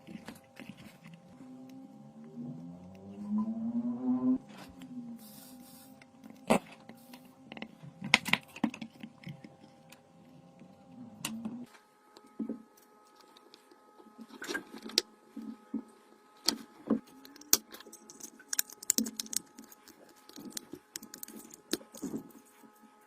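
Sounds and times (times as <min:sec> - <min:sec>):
small hard objects clicking: 0:17.2 - 0:22.2.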